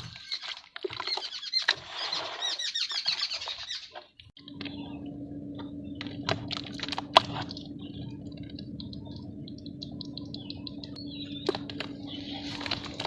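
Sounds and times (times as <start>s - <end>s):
dirt crumbling ticks: 4.2s - 13.0s
dry dirt cracking: 4.3s - 13.0s
steady low hum: 4.4s - 13.0s.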